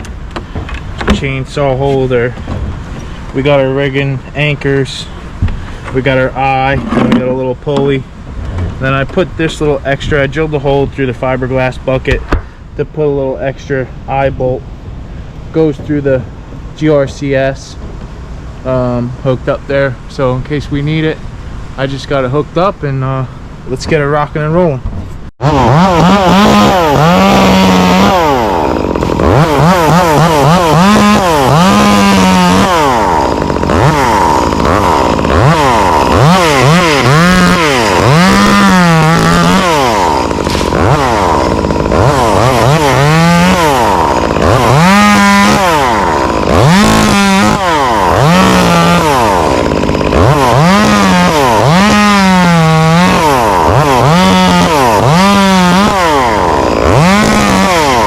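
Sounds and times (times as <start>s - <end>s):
chainsaw revving and cutting: 25.4s - 58.0s.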